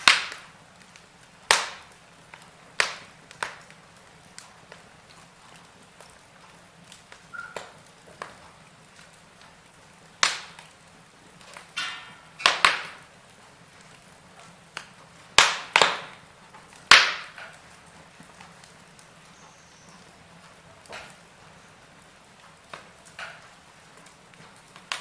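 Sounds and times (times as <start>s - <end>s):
loud sharp fire pops: 0.0s - 4.9s, 6.9s - 13.2s, 13.8s - 19.1s, 22.7s - 25.0s
faint steady hiss: 0.0s - 25.0s
wood fire crackling: 0.0s - 25.0s.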